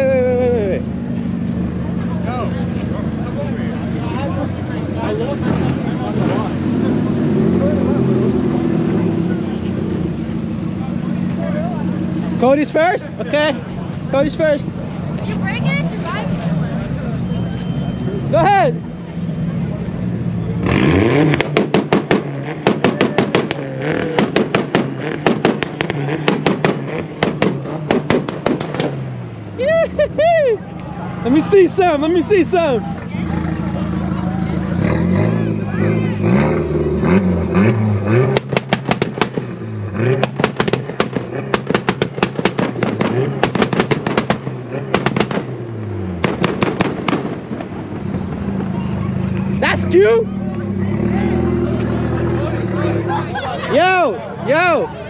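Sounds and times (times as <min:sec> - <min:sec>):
engine revving: 0:01.1 - 0:16.8, 0:18.0 - 0:29.4, 0:31.5 - 0:54.8
exhaust pops and bangs: 0:21.2 - 0:29.2, 0:38.1 - 0:49.5.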